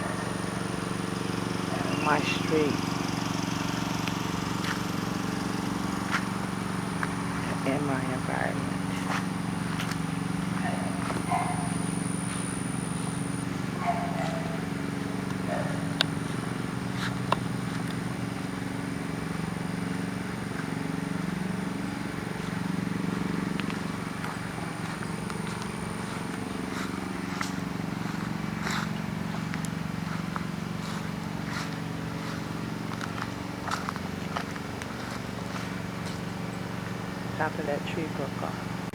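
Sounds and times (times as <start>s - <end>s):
motor humming: 0.0s - 38.9s.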